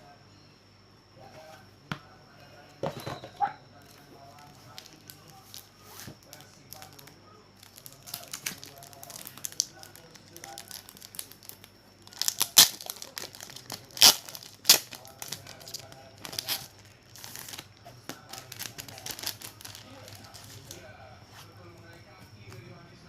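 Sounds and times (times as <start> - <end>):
packaging crinkling: 4.3 - 20.9.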